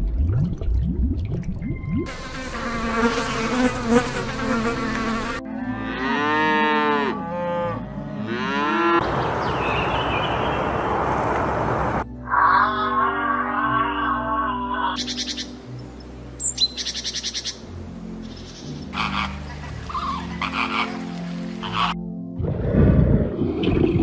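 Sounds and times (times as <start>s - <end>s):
insect-like buzz: 2.1s - 5.5s
cow mooing: 5.5s - 9.0s, 12.5s - 15.0s.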